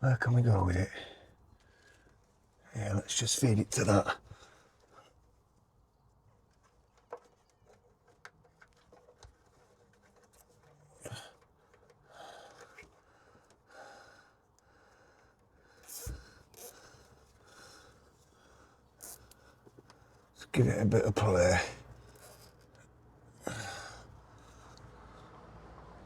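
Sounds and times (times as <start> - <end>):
breathing: 0.9 - 2.3, 4.3 - 5.2, 11.0 - 20.3, 23.4 - 25.4.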